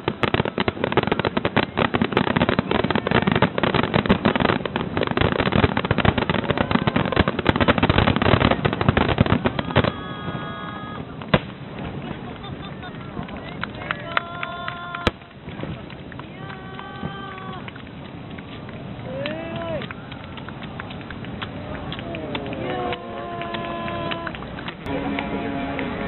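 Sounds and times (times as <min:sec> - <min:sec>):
firework bang: 0:00.0 - 0:12.4
fireworks bursting and crackling: 0:00.0 - 0:26.0.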